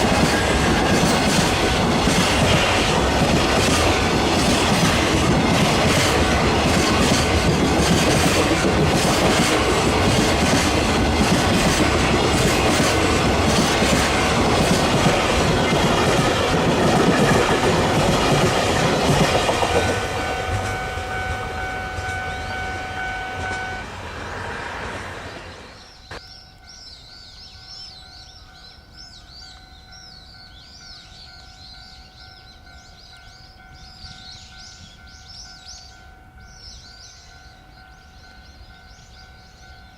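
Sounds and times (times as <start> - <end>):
freight train passing: 0.0 - 39.9
steady high tone: 13.0 - 24.8.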